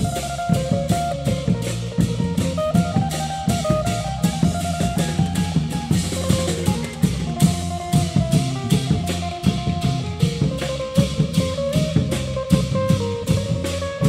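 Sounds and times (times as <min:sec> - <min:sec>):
drums and cymbals beat: 0:00.0 - 0:14.0
plucked string melody: 0:00.0 - 0:14.0.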